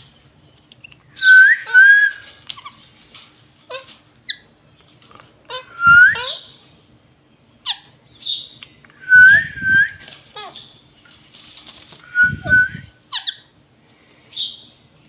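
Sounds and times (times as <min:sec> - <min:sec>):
parrots calling: 0:00.8 - 0:06.6, 0:07.6 - 0:08.6, 0:12.0 - 0:13.6
parrot whistles: 0:01.2 - 0:03.0, 0:05.7 - 0:06.4, 0:09.0 - 0:10.0, 0:12.1 - 0:12.9
wings fluttering: 0:01.3 - 0:04.3, 0:09.2 - 0:13.0.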